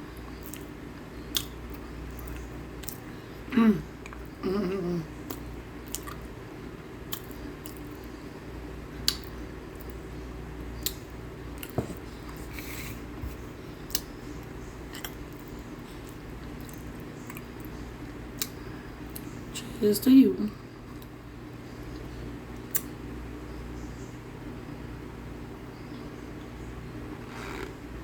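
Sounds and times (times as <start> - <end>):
crunchy chewing: 0.1 - 3.1, 5.2 - 6.4, 7.1 - 8.2, 10.7 - 19.4.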